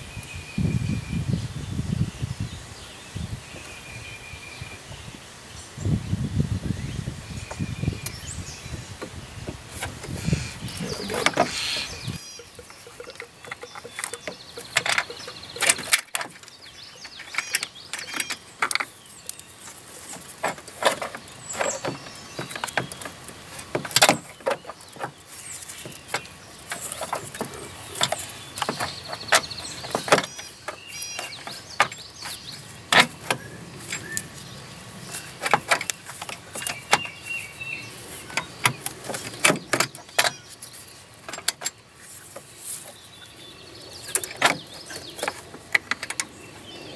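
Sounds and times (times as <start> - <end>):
metal clicks and clinks of tools: 12.6 - 19.5.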